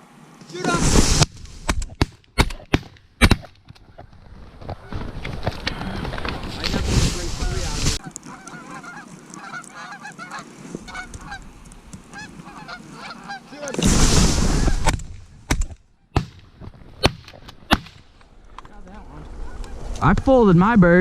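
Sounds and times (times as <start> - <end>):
geese honking: 7.2 - 13.8, 14.5 - 14.9, 18.8 - 20.6.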